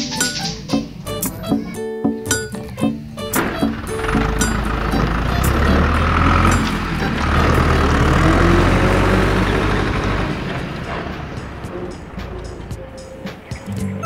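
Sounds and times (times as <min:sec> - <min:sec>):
truck engine rumbling: 0:03.0 - 0:14.0.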